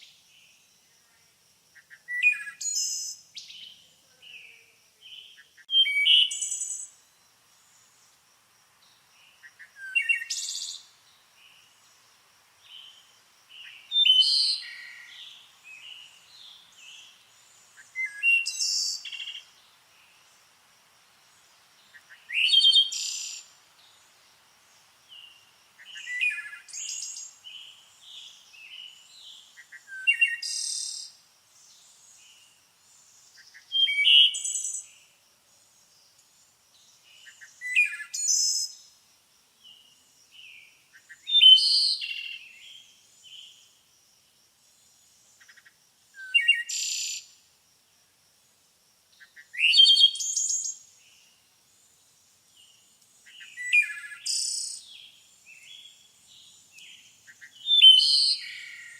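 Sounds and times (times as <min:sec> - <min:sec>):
songbirds chirping: 0:00.0 - 0:58.9
quiet bird twittering: 0:01.8 - 0:08.1, 0:12.6 - 0:20.4, 0:21.4 - 0:39.0, 0:52.5 - 0:58.9.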